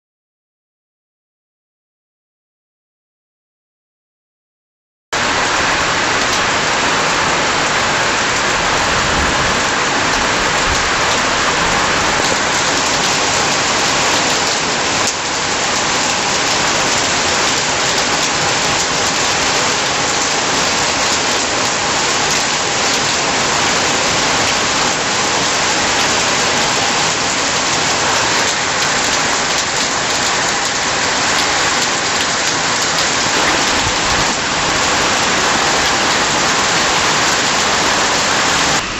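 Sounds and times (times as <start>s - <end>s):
heavy rain pouring: 5.2s - 38.9s.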